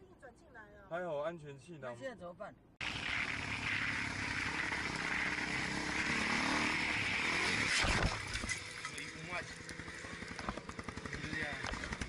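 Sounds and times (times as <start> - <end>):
road noise: 2.5 - 12.0
sharp clatter: 2.8 - 12.0
vehicle engine running: 2.8 - 12.0.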